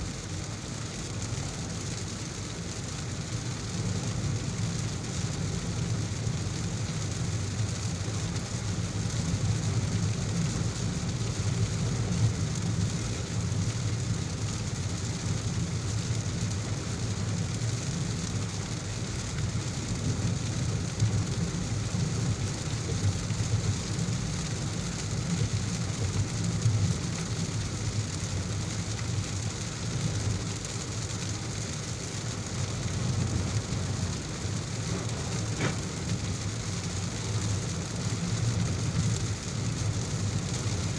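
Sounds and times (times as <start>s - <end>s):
heavy rain falling: 0.0s - 40.9s
low rumble: 33.2s - 37.4s.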